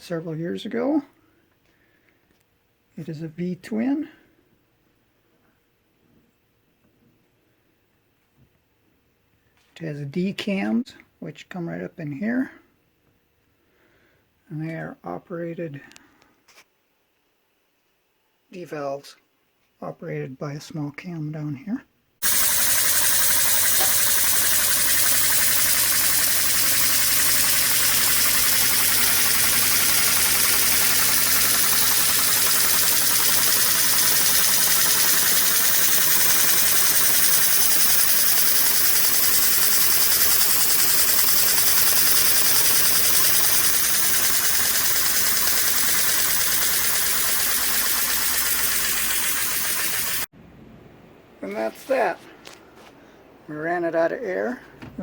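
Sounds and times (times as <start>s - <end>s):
model air engine chattering: 22.2s - 50.3s.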